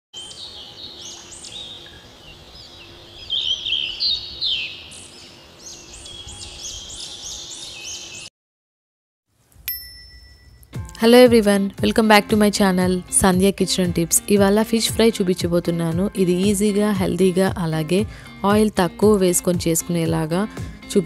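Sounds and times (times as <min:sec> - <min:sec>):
small birds chirping and twittering: 0:00.2 - 0:08.3.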